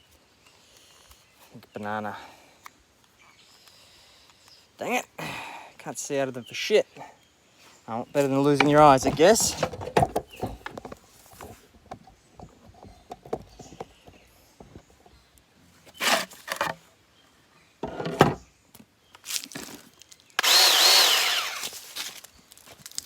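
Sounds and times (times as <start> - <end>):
power saw cutting wood: 16.0 - 16.7, 20.4 - 21.8.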